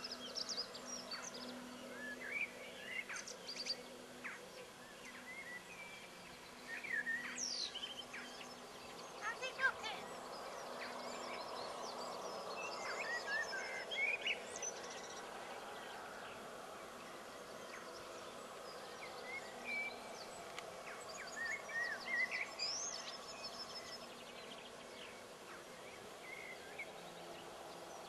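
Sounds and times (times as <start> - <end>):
small birds chirping: 0.0 - 28.0
steady background hiss: 0.0 - 28.0.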